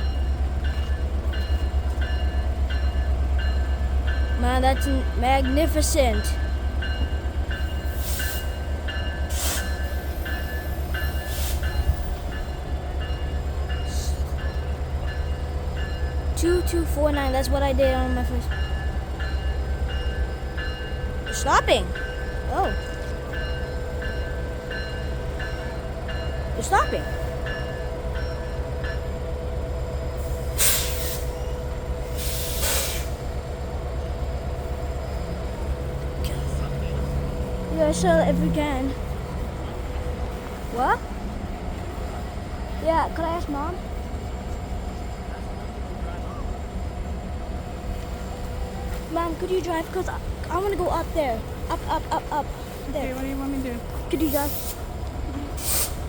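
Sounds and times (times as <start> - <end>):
train rumbling past: 0.0 - 56.0
air brake hiss: 9.3 - 9.8, 11.2 - 11.7, 30.4 - 31.4, 32.1 - 33.2, 54.2 - 54.9, 55.6 - 56.0
short hissing bursts: 55.6 - 56.0.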